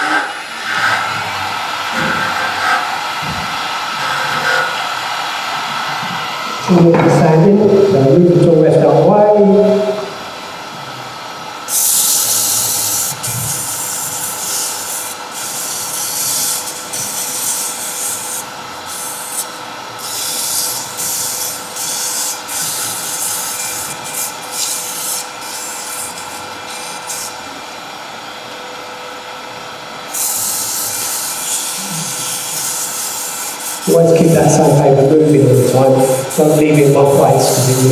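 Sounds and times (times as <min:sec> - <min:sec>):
lathe humming: 0:00.0 - 0:06.9, 0:09.8 - 0:37.9
sandpaper hissing on spinning wood: 0:11.7 - 0:27.6, 0:30.1 - 0:37.9.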